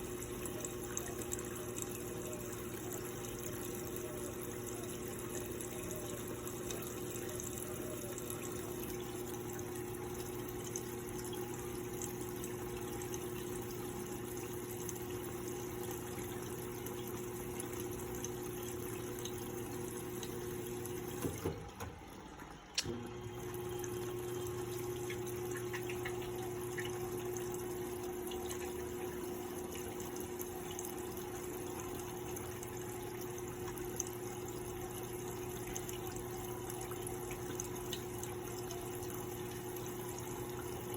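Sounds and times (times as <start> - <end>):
washing machine hum: 0.0 - 40.9
water rushing into washing machine: 0.0 - 40.9
washing machine clicks: 21.0 - 22.1.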